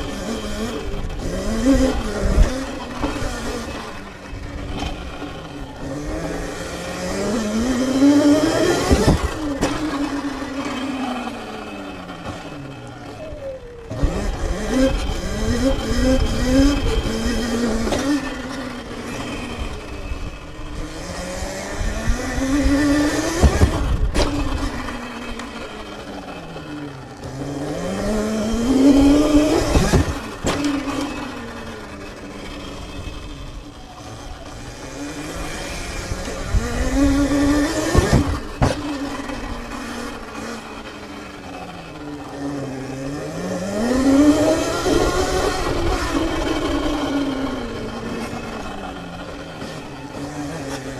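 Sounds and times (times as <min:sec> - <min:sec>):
electric motorbike motor whining: 0:00.0 - 0:50.9
sharp knocks: 0:37.8 - 0:39.1.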